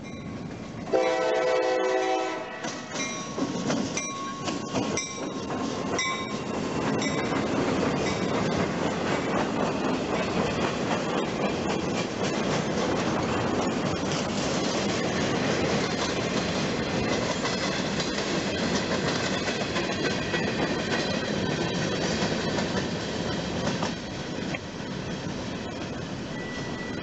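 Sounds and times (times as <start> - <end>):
freight train rolling by: 0.0 - 27.0
wheels clacking on rail: 0.0 - 27.0
train horn blast: 0.9 - 2.8.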